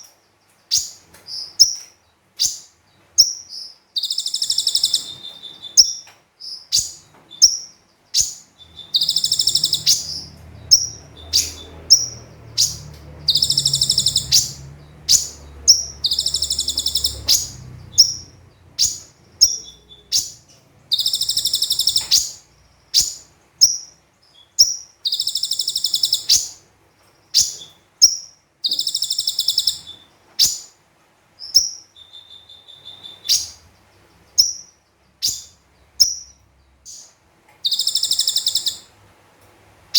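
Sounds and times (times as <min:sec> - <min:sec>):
bird sharp chirps: 0:00.7 - 0:26.6, 0:27.3 - 0:30.8, 0:31.4 - 0:33.7, 0:34.3 - 0:38.9
bird buzzy trills: 0:03.2 - 0:26.6, 0:27.4 - 0:30.7, 0:34.3 - 0:38.9.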